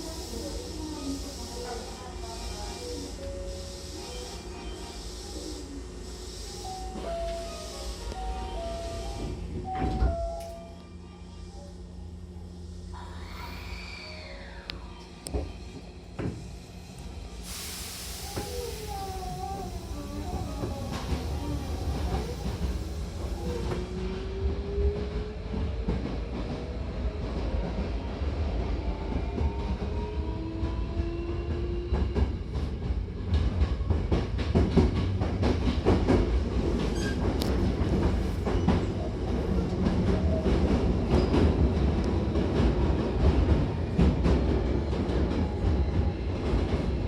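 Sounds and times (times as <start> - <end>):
rising train motor whine: 0.0 - 34.2
train rumbling: 0.0 - 47.0.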